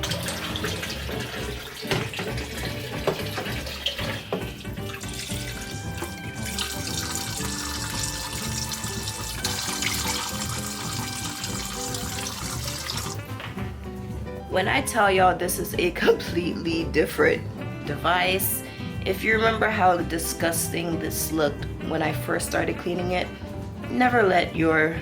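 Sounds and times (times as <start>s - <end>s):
tap water running into sink: 0.0s - 13.7s
background music: 0.0s - 25.0s
parts knocking against sink: 0.8s - 6.2s.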